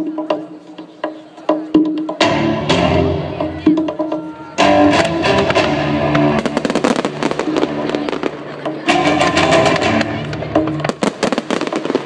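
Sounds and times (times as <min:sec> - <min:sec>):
music: 0:00.0 - 0:12.0
fireworks cracking and popping: 0:05.0 - 0:12.0.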